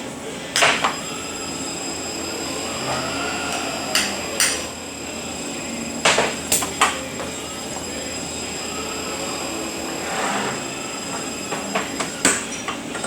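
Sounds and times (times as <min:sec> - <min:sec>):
truck transmission humming and whining: 0:00.0 - 0:13.0.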